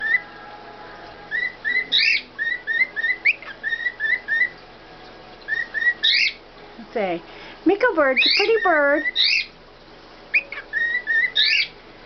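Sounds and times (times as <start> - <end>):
pet bird chirping: 1.3 - 4.6, 5.5 - 6.4, 8.1 - 9.5, 10.3 - 11.8.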